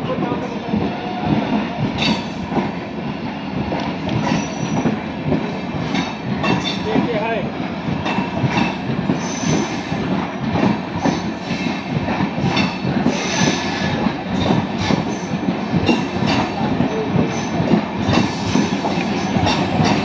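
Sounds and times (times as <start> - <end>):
train wheels clattering over rail joints: 0.2 - 20.0
high wheel squeals: 9.2 - 9.9.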